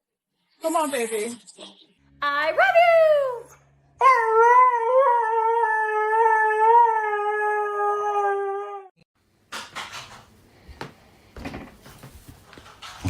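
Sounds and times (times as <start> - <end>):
dog howling: 4.0 - 9.0.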